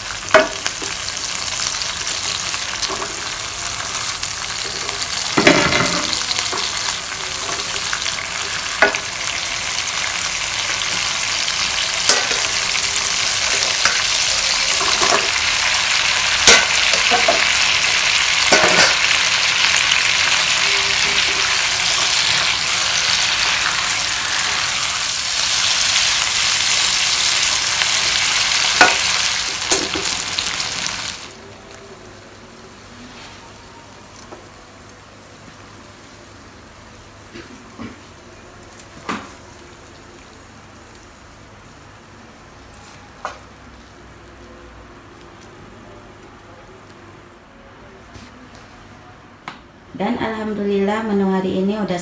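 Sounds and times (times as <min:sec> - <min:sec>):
food sizzling in a wok: 0:00.0 - 0:44.8.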